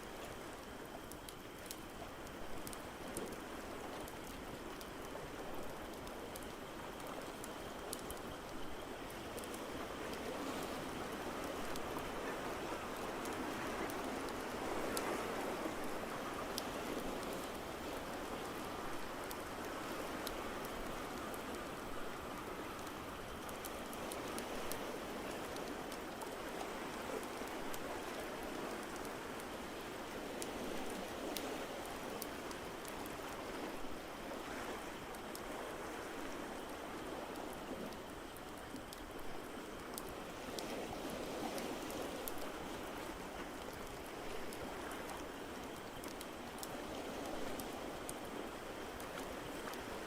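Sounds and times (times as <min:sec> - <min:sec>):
fire crackling and popping: 0:00.3 - 0:10.3.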